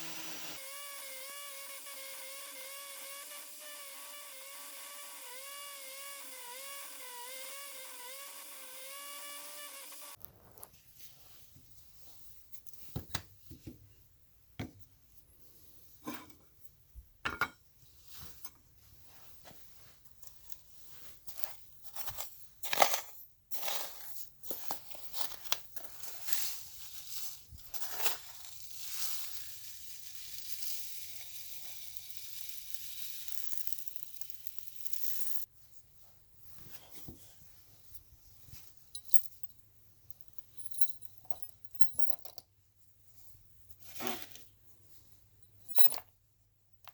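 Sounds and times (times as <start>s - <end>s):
metal parts clicking and clinking: 21.3s - 26.5s, 29.2s - 35.4s, 38.9s - 42.4s, 45.6s - 46.1s.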